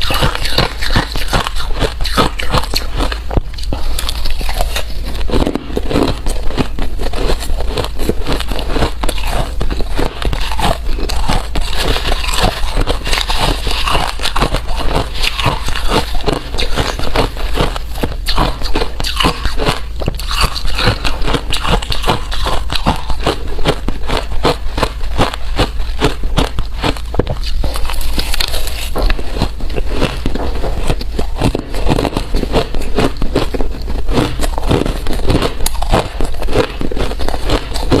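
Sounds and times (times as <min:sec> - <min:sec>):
ice crunching while chewed: 0:00.0 - 0:38.0.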